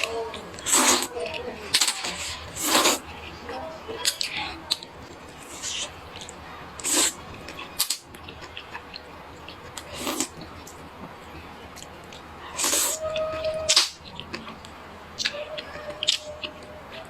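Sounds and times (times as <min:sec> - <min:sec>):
noodle slurping: 0:00.6 - 0:01.2, 0:01.8 - 0:03.1.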